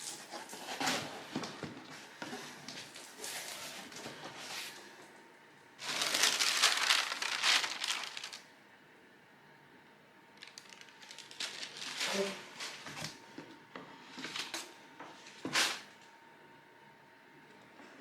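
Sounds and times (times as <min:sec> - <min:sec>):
plastic and cardboard crinkling: 0:05.8 - 0:08.4, 0:10.4 - 0:13.2.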